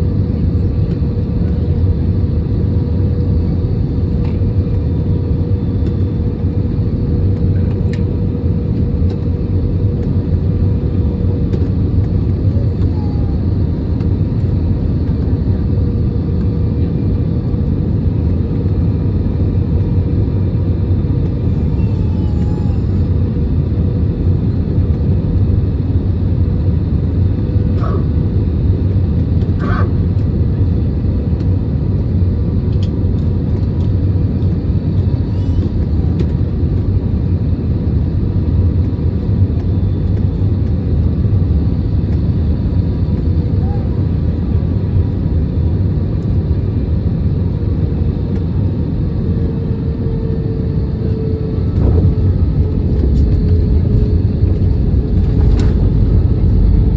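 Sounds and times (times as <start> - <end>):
airplane cabin rumble: 0.0 - 56.9.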